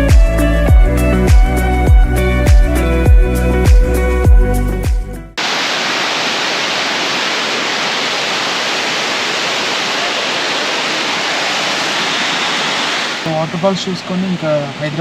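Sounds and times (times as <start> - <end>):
waterfall roaring: 5.4 - 15.0.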